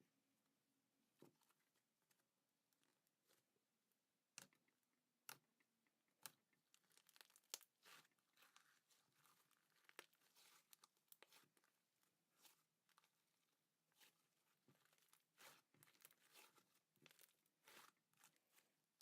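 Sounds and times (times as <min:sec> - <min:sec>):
faint crinkles taps and tearing: 0:04.3 - 0:19.0.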